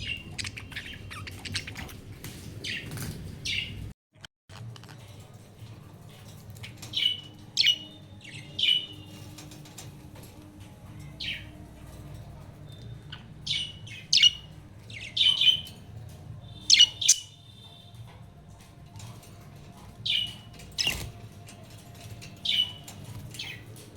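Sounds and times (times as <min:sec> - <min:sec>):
budgerigars chirping: 0:13.5 - 0:15.7, 0:16.6 - 0:17.4.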